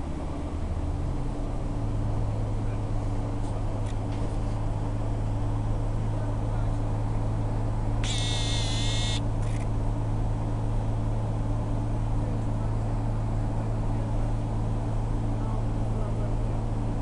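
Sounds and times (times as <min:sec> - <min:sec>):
diesel engine drone: 0:00.0 - 0:17.0
high-pitched squeal: 0:08.0 - 0:09.2
wheels on track: 0:08.0 - 0:09.7.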